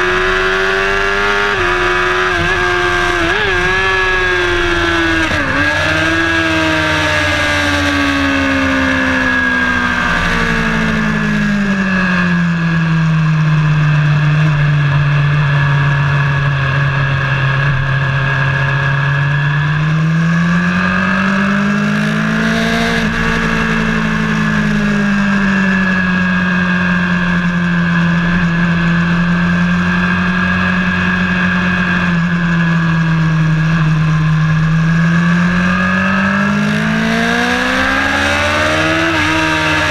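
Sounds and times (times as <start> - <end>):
high whine: 0.0 - 35.8
vehicle engine on track: 0.0 - 39.9
rushing noise: 8.4 - 13.2, 22.0 - 26.9.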